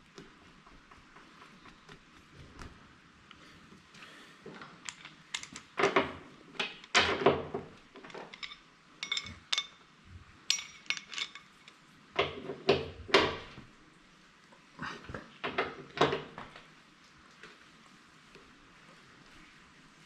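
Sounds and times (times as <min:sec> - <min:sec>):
metal tools and bolts clinking: 0:04.8 - 0:12.4.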